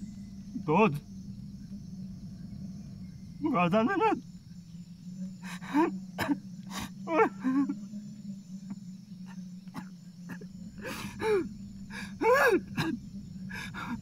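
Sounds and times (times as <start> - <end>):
steady low hum: 0.0 - 14.0
man crying out and groaning: 5.5 - 7.8, 10.3 - 14.0.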